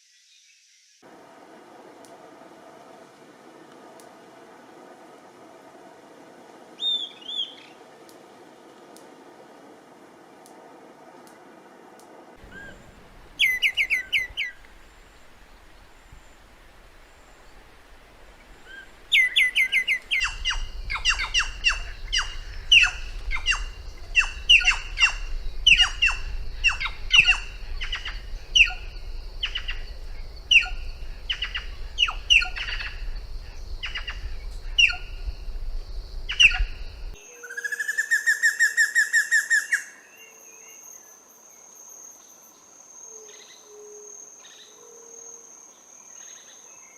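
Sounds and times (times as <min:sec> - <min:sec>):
songbirds singing: 0:06.8 - 0:08.2, 0:12.4 - 0:41.7
bird trill: 0:12.4 - 0:16.4, 0:18.5 - 0:35.3
low rumble: 0:12.4 - 0:37.2.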